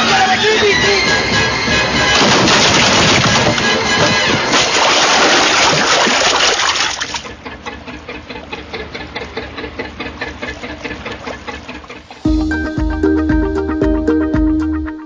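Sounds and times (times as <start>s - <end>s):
quiet rhythmic music: 12.0s - 15.0s.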